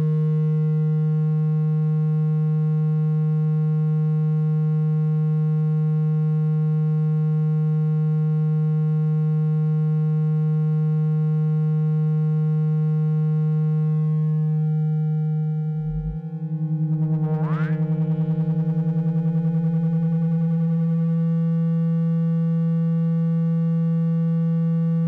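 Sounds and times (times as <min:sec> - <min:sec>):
low electronic tone: 0:13.8 - 0:25.0.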